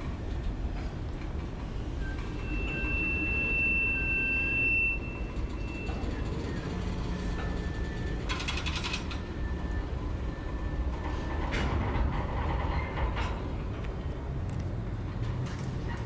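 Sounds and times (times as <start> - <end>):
freight train rumbling past: 0.0 - 16.0
metallic clatter of wheels: 0.0 - 16.0
train wheel squeal: 1.4 - 13.4.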